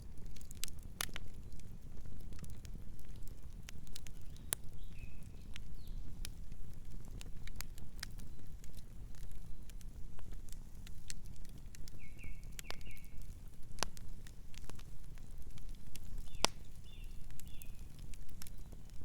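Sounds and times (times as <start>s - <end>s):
low rumble of flames: 0.0s - 19.0s
wood crackling and popping: 0.0s - 19.0s.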